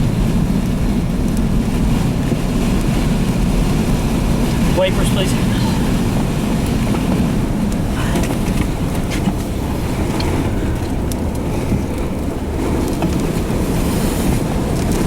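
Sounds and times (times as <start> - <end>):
blowing sand and grit ticking: 0.0 - 15.0
strong wind rumbling: 0.0 - 15.0.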